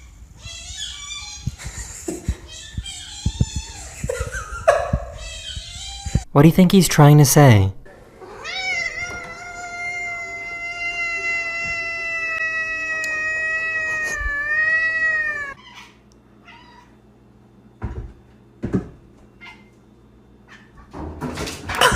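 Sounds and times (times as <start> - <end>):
cat meowing high-pitched: 2.5 - 3.9, 5.1 - 6.3, 8.4 - 15.6.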